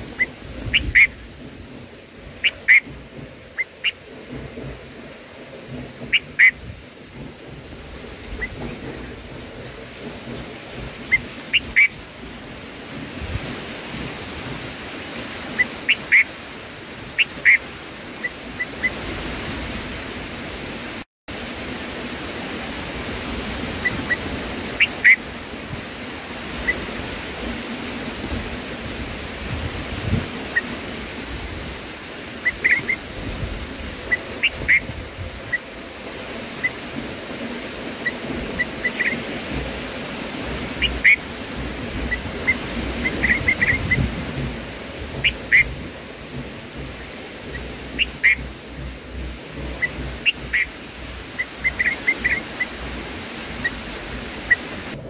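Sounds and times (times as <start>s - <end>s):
steady rushing noise: 0.0s - 55.0s
high bird chirps: 2.4s - 2.9s, 48.0s - 48.4s.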